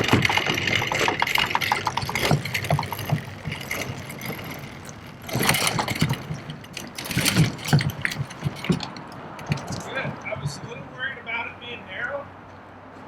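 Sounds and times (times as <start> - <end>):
knocks and rattles: 0.0 - 11.4
wheels rolling over asphalt: 0.0 - 12.2.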